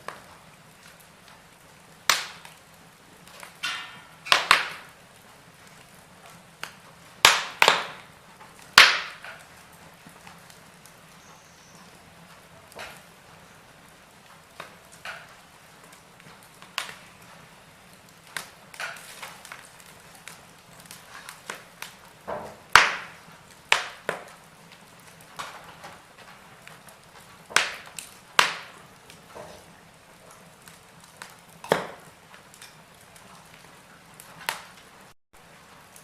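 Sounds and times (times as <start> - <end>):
steady low hiss: 0.0 - 36.0
wood fire crackling: 0.0 - 36.0
sharp pops: 2.1 - 2.6, 3.3 - 4.9, 6.6 - 8.1, 8.8 - 9.4, 20.8 - 24.4, 27.4 - 28.8, 31.2 - 32.7.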